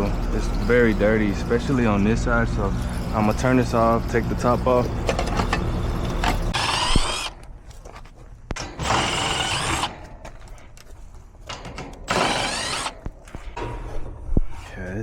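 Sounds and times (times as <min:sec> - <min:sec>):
drill motor whine: 0:06.2 - 0:07.4, 0:08.8 - 0:09.9, 0:12.1 - 0:13.0.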